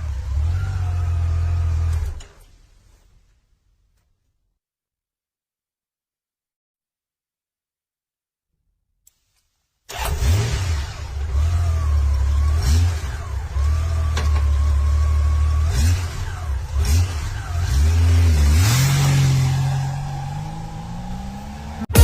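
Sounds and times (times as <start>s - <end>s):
motorcycle engine revving: 0.0s - 2.2s, 9.9s - 22.0s.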